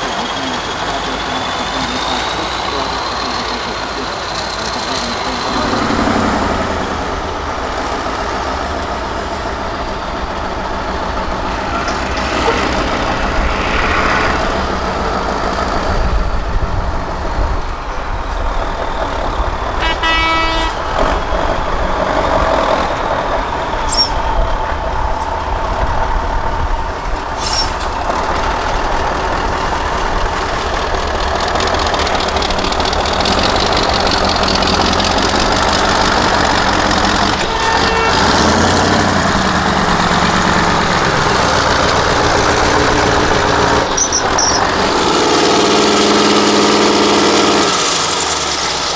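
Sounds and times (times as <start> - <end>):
diesel truck engine rumbling: 0.0 - 48.9
horn toot: 4.6 - 15.7, 19.7 - 21.2, 35.0 - 41.7.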